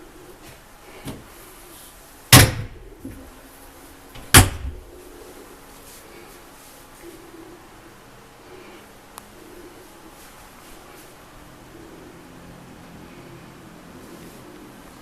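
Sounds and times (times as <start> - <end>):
sharp loud knocks: 2.3 - 2.8.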